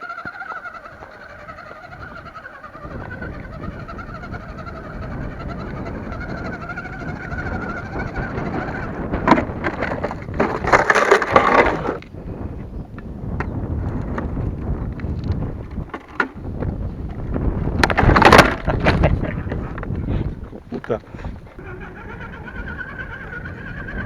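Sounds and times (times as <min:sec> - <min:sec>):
electric motor and gears whining: 0:00.0 - 0:24.0
wind rumble on microphone: 0:00.2 - 0:24.0
clattering and rattling: 0:08.6 - 0:12.0, 0:17.8 - 0:19.9.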